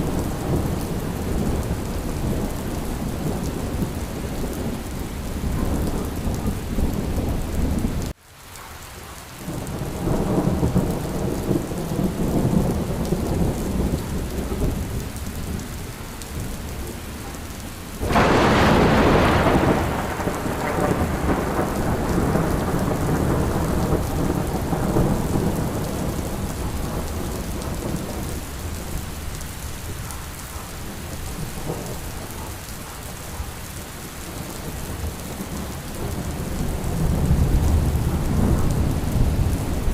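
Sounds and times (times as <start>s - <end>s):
low rolling thunder: 0.0s - 8.1s, 9.5s - 17.4s, 18.0s - 39.9s
heavy rain: 0.0s - 39.9s
sharp thunderclap: 18.0s - 28.3s.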